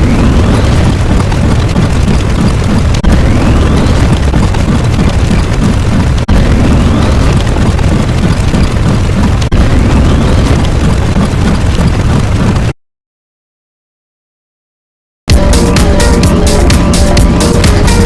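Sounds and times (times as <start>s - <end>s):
explosion rumble: 0.0s - 12.7s.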